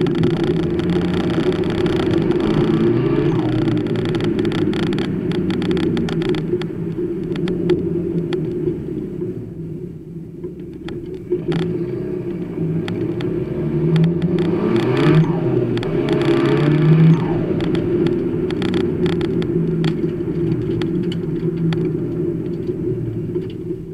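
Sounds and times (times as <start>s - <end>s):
turbocharged engine revving: 0.0s - 6.7s, 11.2s - 22.1s
clicks and knocks from car body: 0.0s - 8.7s, 17.5s - 23.8s.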